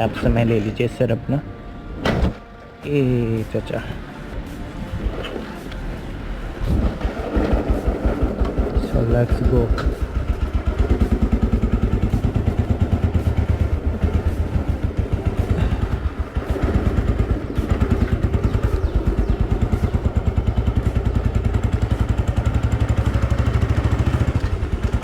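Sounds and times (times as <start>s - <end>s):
motorcycle engine pulsing: 4.0s - 25.0s.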